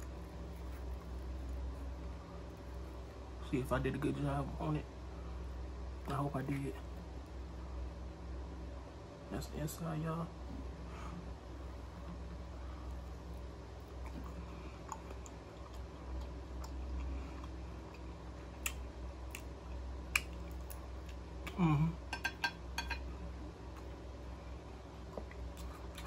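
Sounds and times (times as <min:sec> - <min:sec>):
low room hum: 0:00.0 - 0:26.0
close chewing: 0:12.9 - 0:21.6, 0:25.1 - 0:26.0
mouth clicks and lip smacks: 0:18.6 - 0:19.5, 0:20.1 - 0:21.6
person humming: 0:21.5 - 0:22.0.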